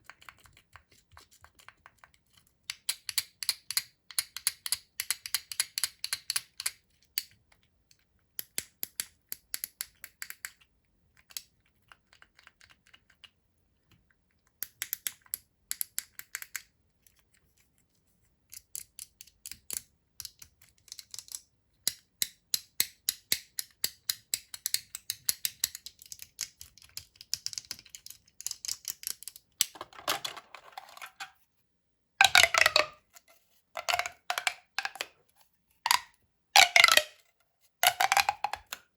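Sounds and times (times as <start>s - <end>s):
clicking and tapping on plastic: 0.0s - 7.6s.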